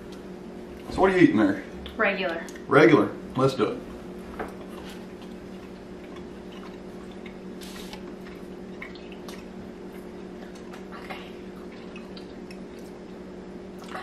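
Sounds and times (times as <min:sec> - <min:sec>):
quiet chewing: 0:03.9 - 0:14.0.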